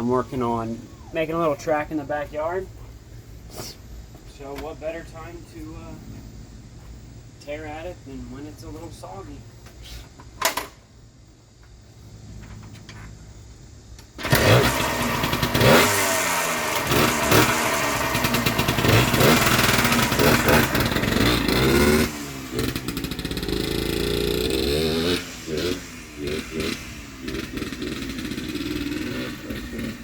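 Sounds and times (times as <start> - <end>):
dirt bike engine revving: 14.2 - 30.0.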